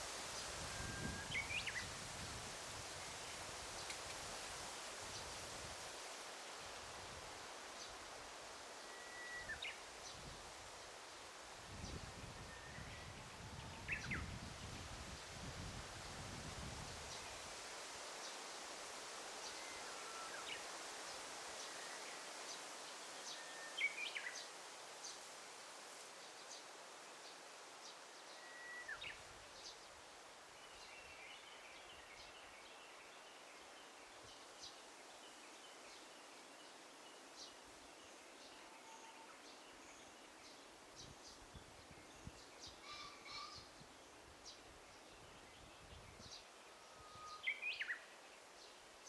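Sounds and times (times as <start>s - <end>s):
faint rustling hiss: 0.0s - 49.0s
whistled bird notes: 8.9s - 9.8s, 28.3s - 29.2s
songbird calls: 27.9s - 29.8s, 38.2s - 43.8s, 44.5s - 48.2s.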